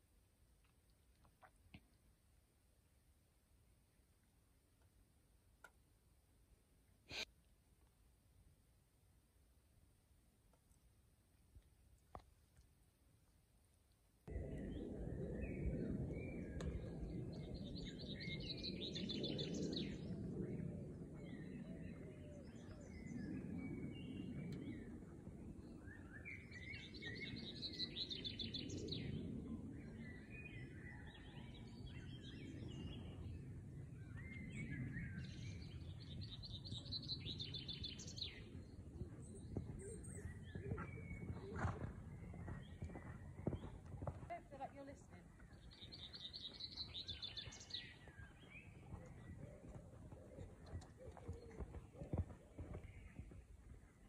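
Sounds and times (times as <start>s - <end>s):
birds singing: 14.5s - 20.2s, 25.6s - 54.0s.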